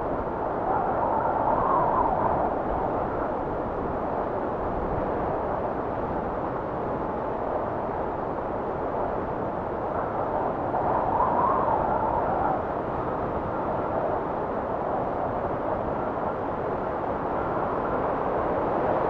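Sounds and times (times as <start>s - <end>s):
blizzard wind blowing: 0.0s - 19.0s.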